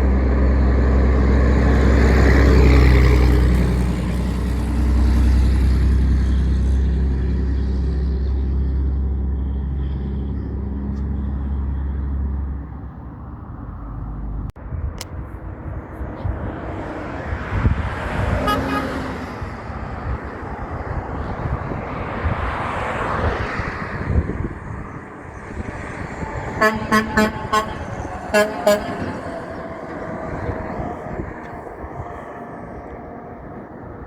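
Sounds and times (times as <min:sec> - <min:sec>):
vehicle passing by: 0:00.0 - 0:14.6, 0:15.4 - 0:34.0
road traffic: 0:00.0 - 0:34.0
truck horn blasts: 0:17.6 - 0:21.1, 0:25.3 - 0:34.0.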